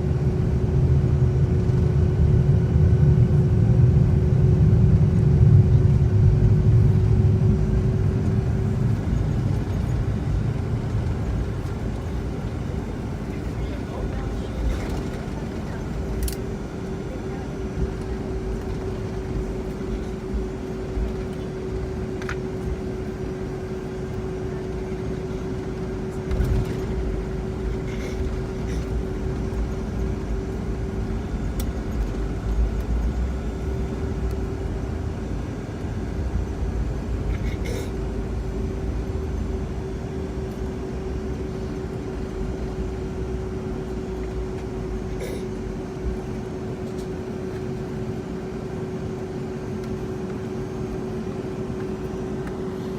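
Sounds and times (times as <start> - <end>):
jet engines rumbling in cabin: 0.0 - 52.9.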